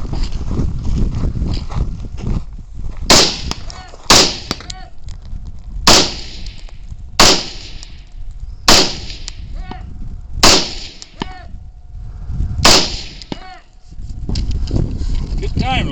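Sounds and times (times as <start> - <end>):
rifle shots: 3.1 - 4.7, 5.8 - 8.1, 8.7 - 9.5, 10.4 - 11.2, 12.6 - 13.4.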